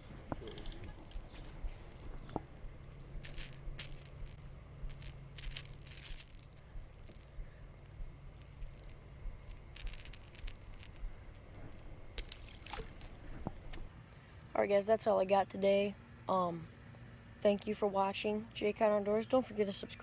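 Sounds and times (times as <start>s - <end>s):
metallic clicking and rattling: 0.0s - 7.4s, 8.3s - 13.5s
faint low hum: 0.0s - 20.0s.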